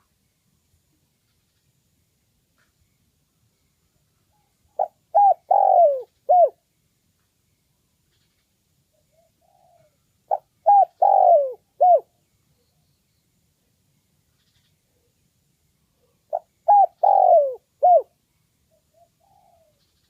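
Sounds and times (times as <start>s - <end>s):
dove cooing: 4.8s - 6.6s, 9.1s - 12.1s, 16.0s - 18.1s, 18.7s - 20.0s.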